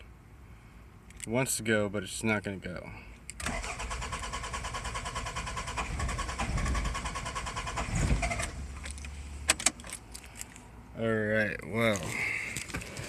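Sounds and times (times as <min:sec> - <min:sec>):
engine cranking on starter: 0:03.4 - 0:08.6.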